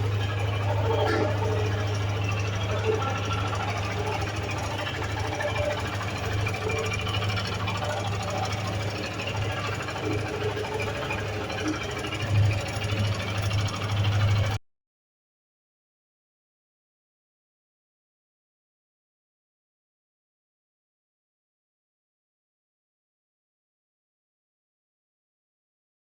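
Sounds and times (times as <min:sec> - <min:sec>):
motorcycle engine idling: 0:00.0 - 0:14.6
rapid mechanical ticking: 0:00.0 - 0:14.6.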